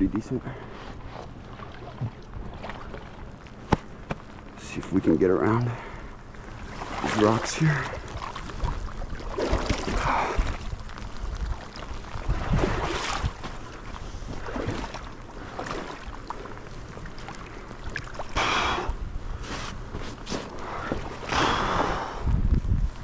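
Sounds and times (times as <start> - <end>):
splashes of wading: 0.7 - 4.6, 5.5 - 22.3
river water sloshing: 0.7 - 22.2
wind rumbling on microphone: 7.6 - 15.4, 16.1 - 23.0.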